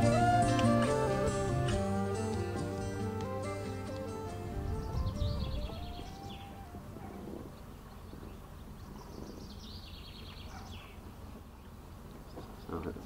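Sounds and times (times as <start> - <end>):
songbird trilling: 4.6 - 11.0.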